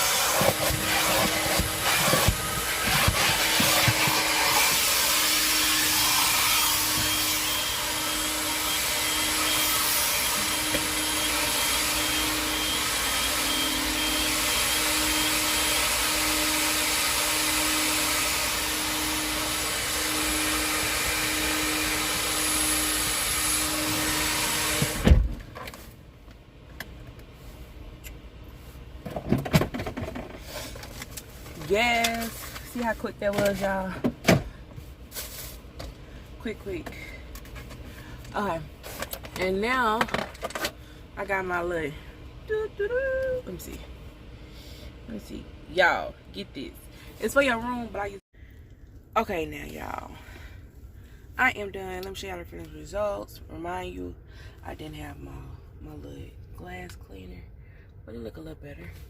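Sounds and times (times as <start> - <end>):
vacuum cleaner running: 0.0 - 25.7, 28.6 - 48.2.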